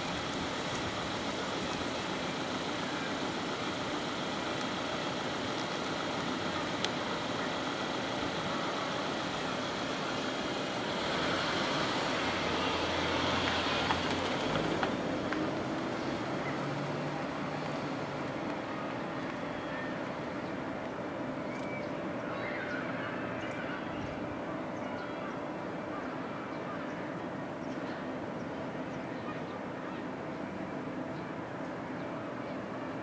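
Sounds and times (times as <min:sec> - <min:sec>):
background traffic noise: 0:00.0 - 0:33.0.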